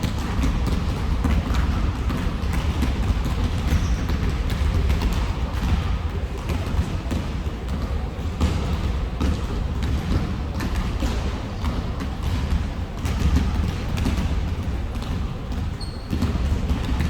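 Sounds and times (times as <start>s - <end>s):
basketballs bouncing on hard floor: 0.0s - 17.0s.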